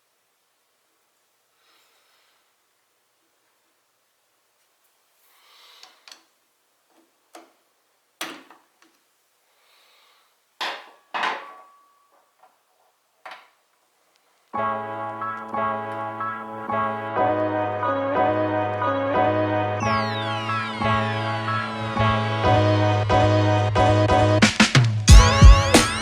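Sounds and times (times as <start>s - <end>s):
tools knocking and clinking: 8.2s - 8.6s, 10.6s - 12.6s, 13.2s - 13.6s
soft piano music: 14.6s - 23.3s.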